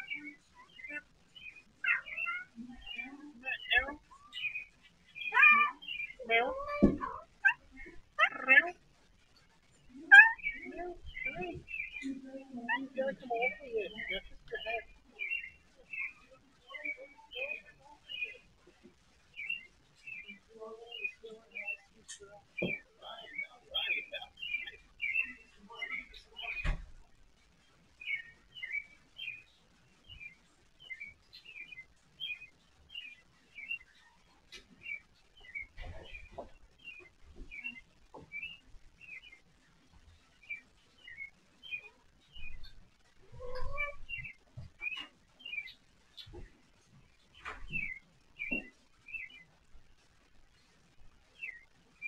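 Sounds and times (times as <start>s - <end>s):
bird chirping: 0.0s - 52.0s.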